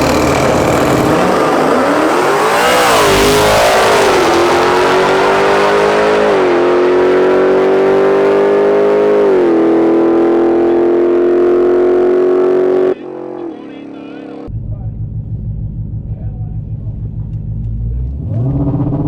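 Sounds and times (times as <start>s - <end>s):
car engine at full throttle: 0.0s - 19.0s.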